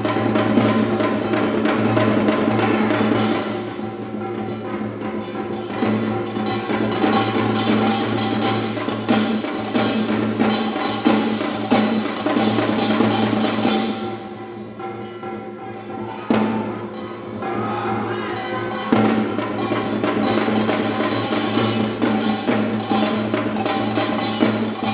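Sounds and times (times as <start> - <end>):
drums playing quick strokes: 5.5 - 14.3, 18.4 - 24.9.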